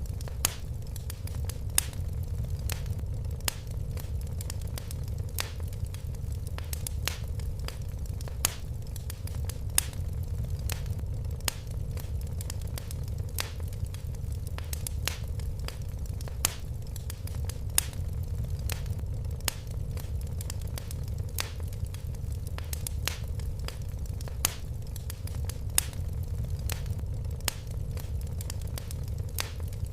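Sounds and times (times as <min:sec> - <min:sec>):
fire crackling in a fireplace: 0:00.0 - 0:29.9.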